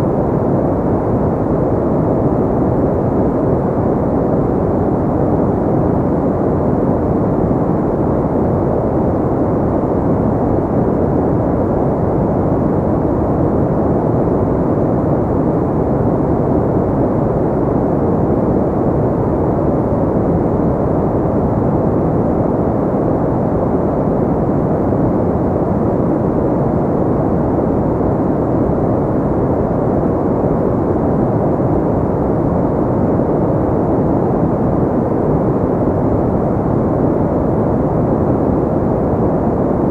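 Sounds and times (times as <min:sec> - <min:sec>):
deep muffled steady noise: 0:00.0 - 0:39.9.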